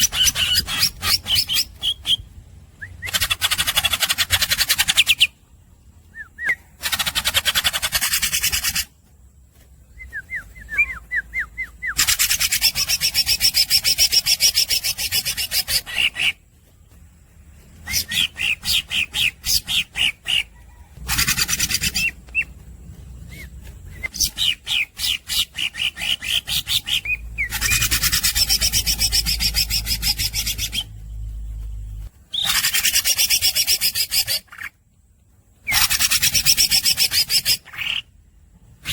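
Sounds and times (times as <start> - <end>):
bird rasping trill: 0.0 - 2.2, 2.8 - 5.3, 6.2 - 8.9, 10.0 - 16.4, 17.8 - 22.6, 23.2 - 31.0, 32.3 - 34.7, 35.6 - 38.1
bird whistled notes: 6.1 - 6.7, 9.9 - 16.3, 17.8 - 20.1
bird rising chirps: 17.7 - 34.7.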